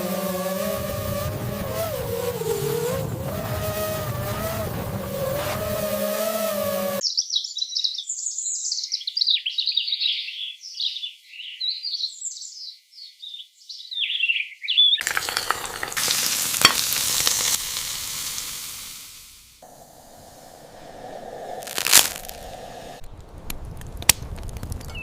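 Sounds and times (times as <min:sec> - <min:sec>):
birds chirping: 0:05.1 - 0:15.1
food sizzling: 0:15.0 - 0:23.0.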